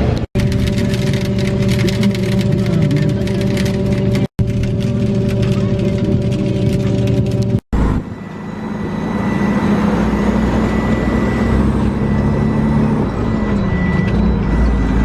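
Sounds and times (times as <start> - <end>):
combine harvester droning: 0.0 - 15.0
thin high whine: 0.7 - 15.0.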